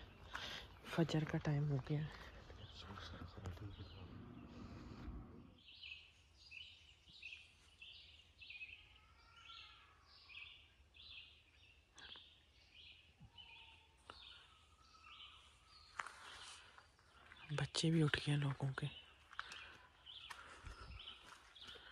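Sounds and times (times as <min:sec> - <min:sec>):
low steady hum: 0:00.0 - 0:05.7
songbird chirping: 0:00.0 - 0:21.9
faint lower bird call: 0:08.0 - 0:16.7.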